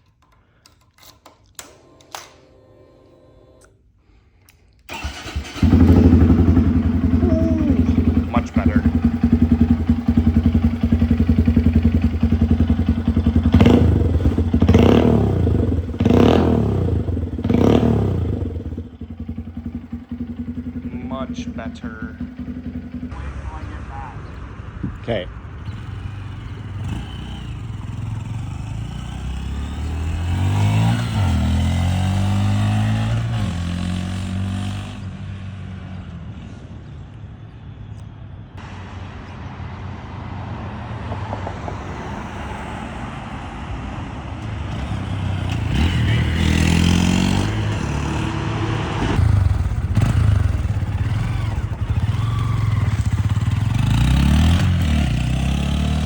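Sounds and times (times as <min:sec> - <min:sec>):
motorcycle engine revving: 0:04.9 - 0:36.1, 0:44.4 - 0:56.0.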